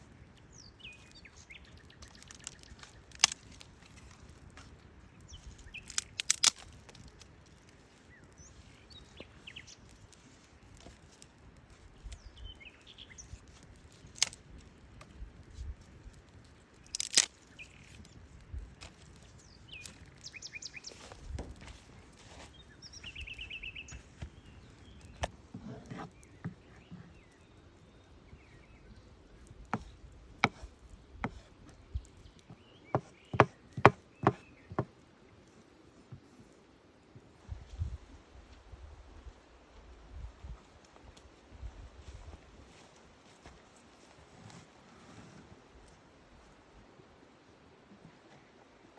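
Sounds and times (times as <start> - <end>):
sharp cracks or knocks: 16.9 - 17.3.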